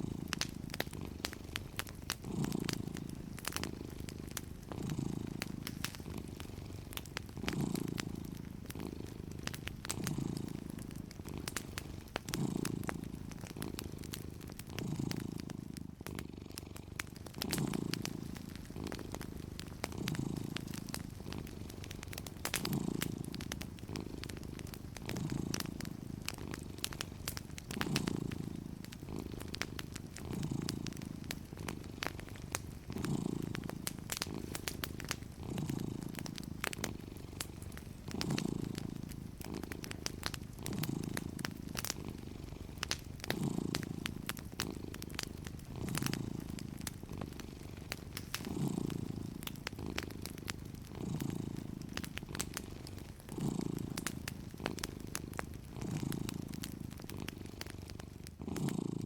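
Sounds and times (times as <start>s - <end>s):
cat purring: 0.0s - 59.0s
wood fire crackling: 0.0s - 59.0s.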